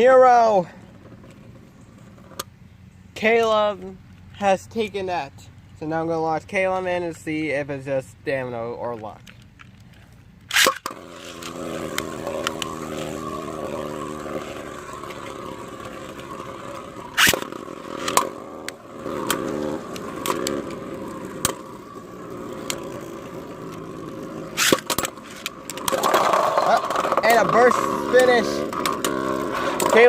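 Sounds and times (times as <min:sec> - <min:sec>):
top launched with sharp clack: 0:10.5 - 0:12.7, 0:24.6 - 0:27.6
spinning tops whirring and scraping: 0:10.5 - 0:30.0
spinning tops clacking together: 0:24.6 - 0:27.6.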